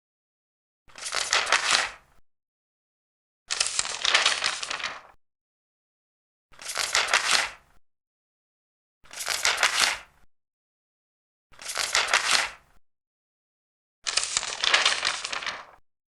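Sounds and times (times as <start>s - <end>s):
paper pages turning: 0.9s - 2.0s, 3.5s - 5.2s, 6.6s - 7.6s, 9.1s - 10.1s, 11.6s - 12.6s, 14.0s - 15.8s.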